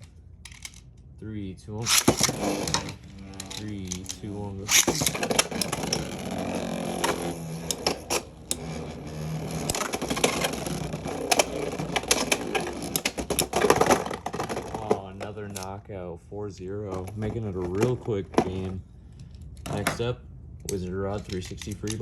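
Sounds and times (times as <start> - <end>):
spinning tops clacking together: 1.8 - 8.7
spinning tops humming: 1.8 - 14.9.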